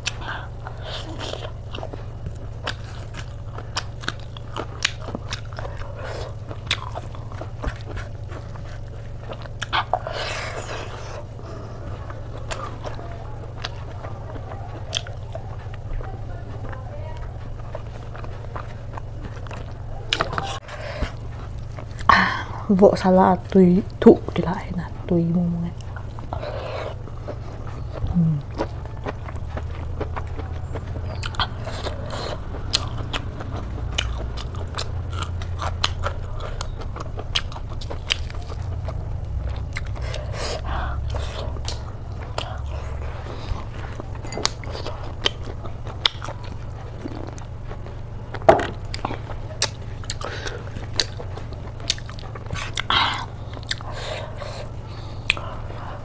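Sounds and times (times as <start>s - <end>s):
low hum: 0.0s - 56.0s
person chewing: 0.0s - 56.0s.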